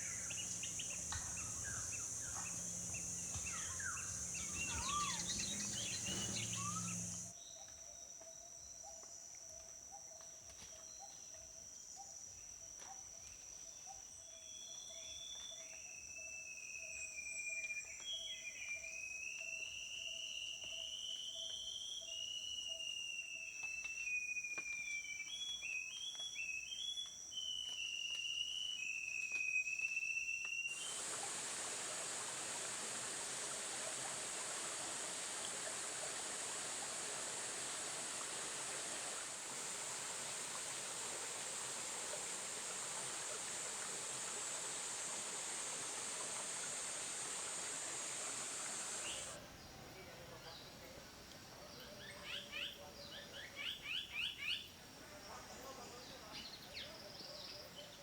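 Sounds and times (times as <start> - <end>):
bird singing warbled song: 0.0 - 7.3, 45.4 - 49.4
high-pitched insect drone: 0.0 - 7.3, 39.2 - 49.3
hornbill calls: 0.0 - 7.3
running water: 0.0 - 7.3, 30.7 - 49.4.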